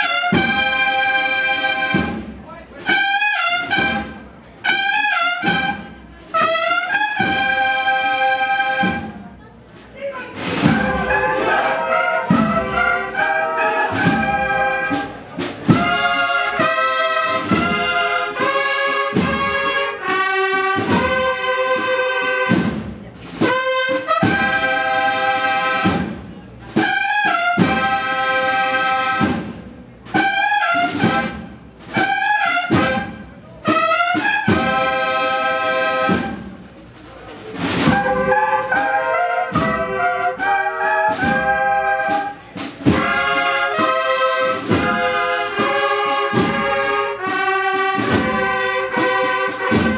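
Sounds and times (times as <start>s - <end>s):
cornets playing in harmony: 0.0s - 9.2s, 10.2s - 29.5s, 30.1s - 49.9s
drum strokes: 5.4s - 49.9s.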